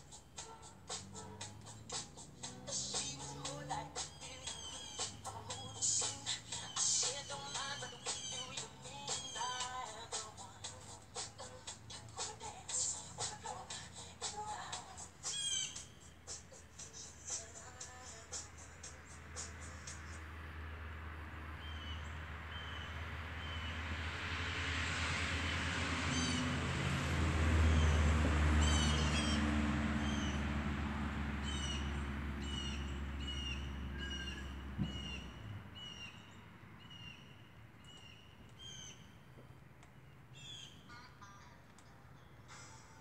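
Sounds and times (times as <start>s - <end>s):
small birds chirping: 0.0s - 20.2s, 27.7s - 30.5s, 31.4s - 43.0s
low motor rumble: 25.4s - 36.3s.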